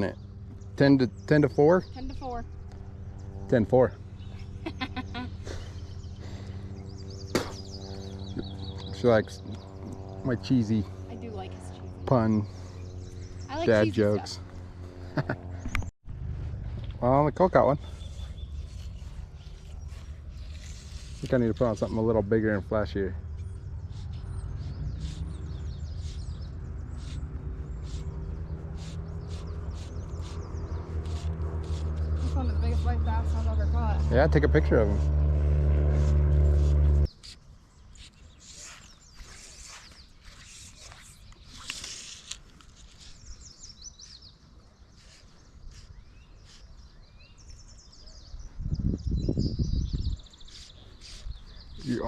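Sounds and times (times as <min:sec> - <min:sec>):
small birds chirping: 0:00.0 - 0:15.9, 0:16.8 - 0:35.4, 0:36.0 - 0:52.0
low rumble: 0:00.0 - 0:21.2, 0:22.0 - 0:37.1
short rising bird chirps: 0:36.6 - 0:52.0.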